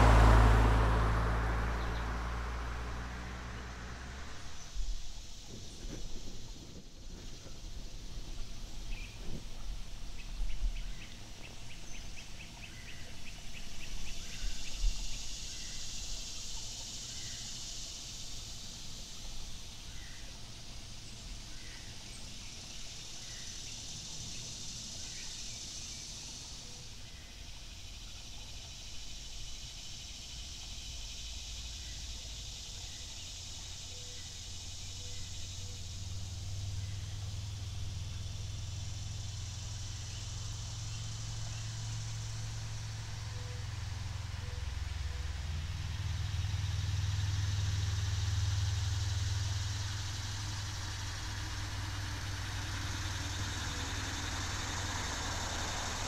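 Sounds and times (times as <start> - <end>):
birds calling: 0.0 - 5.3
low hum: 0.0 - 6.8
stream hissing: 0.0 - 56.0.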